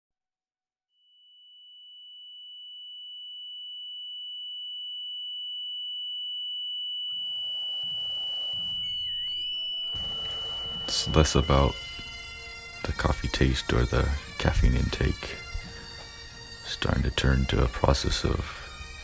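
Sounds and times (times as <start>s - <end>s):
high-pitched pure tone: 7.1s - 19.0s.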